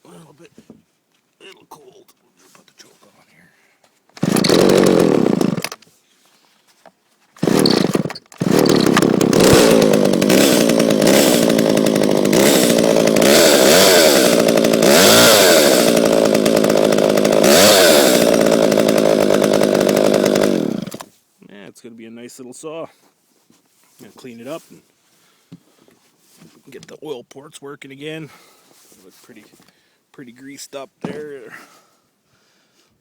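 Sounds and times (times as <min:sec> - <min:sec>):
chainsaw starting and revving: 0:04.2 - 0:05.8, 0:07.4 - 0:21.1.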